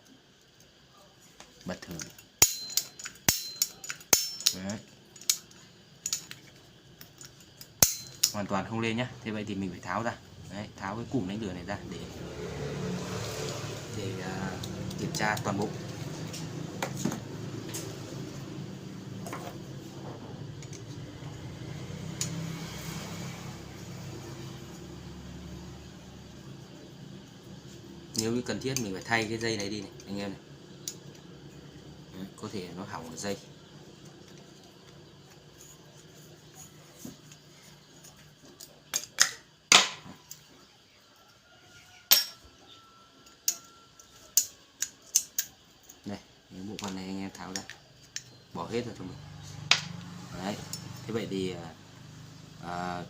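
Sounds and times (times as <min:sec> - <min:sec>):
steady low hum: 0:00.0 - 0:13.0, 0:13.6 - 0:40.4
metallic clicks and clinks: 0:01.7 - 0:08.5.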